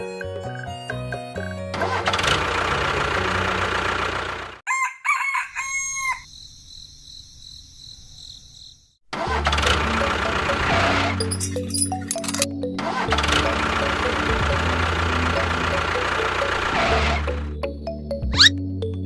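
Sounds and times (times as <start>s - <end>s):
loud machinery noise: 1.7s - 4.6s, 9.2s - 17.5s
rooster crowing: 4.7s - 6.3s.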